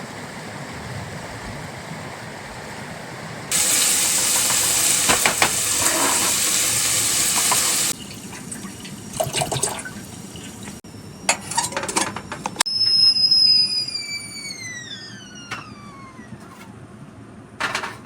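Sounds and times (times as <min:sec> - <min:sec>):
water pouring: 0:03.5 - 0:10.8.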